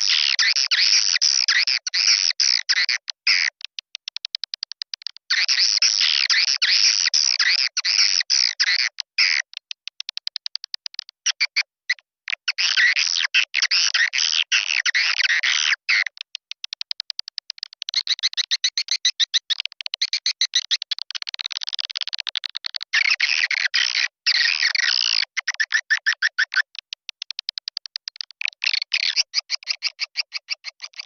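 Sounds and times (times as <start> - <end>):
swiftlet rapid clicks: 3.5 - 5.3, 9.4 - 11.2, 16.0 - 22.9, 24.9 - 31.0.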